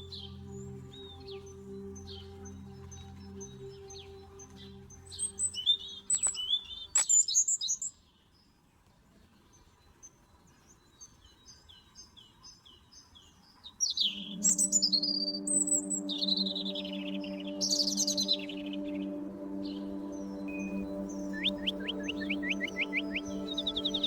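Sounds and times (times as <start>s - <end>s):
background music: 0.0s - 6.8s, 14.1s - 24.0s
songbirds singing: 0.0s - 8.6s, 9.2s - 24.0s.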